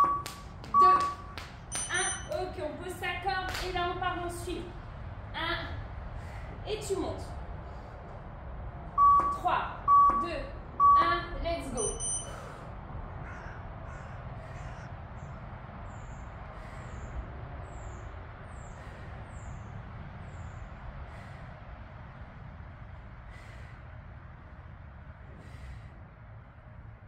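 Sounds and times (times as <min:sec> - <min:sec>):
puffs of breath: 0:16.4 - 0:19.8, 0:23.1 - 0:24.3, 0:25.3 - 0:26.3.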